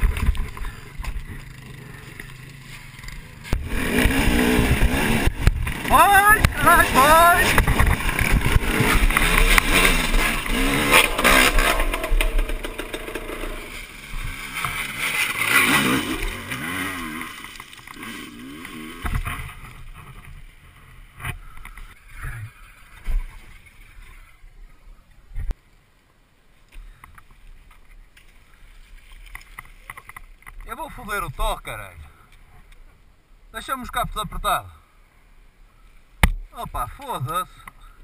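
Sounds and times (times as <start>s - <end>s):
dirt bike engine revving: 0.0s - 20.3s.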